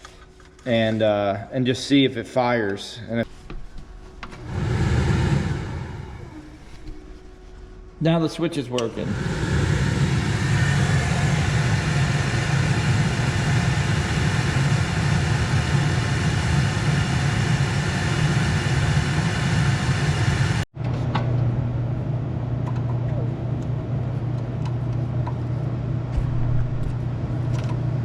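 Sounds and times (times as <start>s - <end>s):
pressure washer running: 4.4s - 7.0s, 9.0s - 20.6s.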